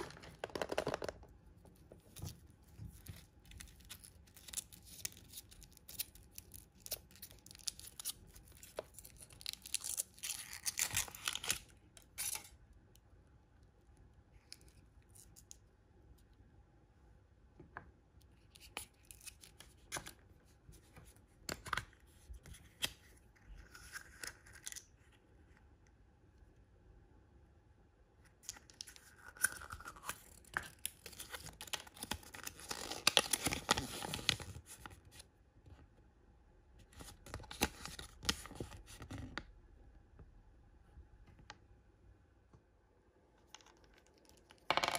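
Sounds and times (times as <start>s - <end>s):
packaging being torn: 3.6s - 12.5s, 28.9s - 34.6s.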